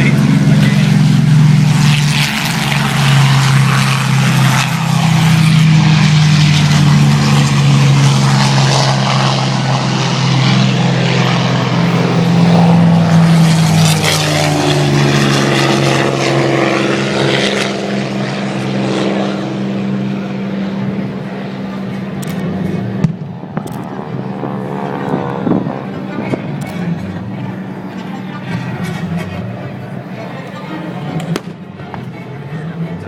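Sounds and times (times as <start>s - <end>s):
aircraft engine droning: 0.0s - 33.0s.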